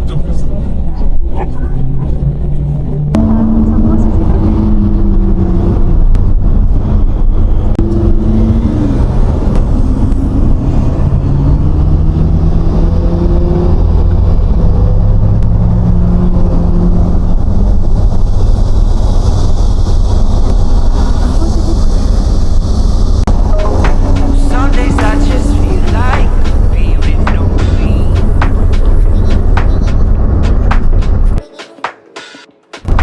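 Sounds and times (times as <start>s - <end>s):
sports car engine and exhaust: 0.0s - 31.4s
road and wind hiss: 2.2s - 31.4s.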